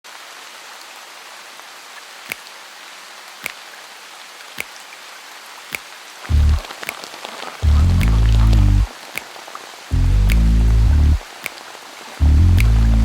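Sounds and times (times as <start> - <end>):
rain hiss: 0.1 - 13.0
water drips dropping in pitch: 5.7 - 13.0
deep bass note: 6.3 - 6.6, 7.6 - 8.9, 9.9 - 11.2, 12.2 - 13.0.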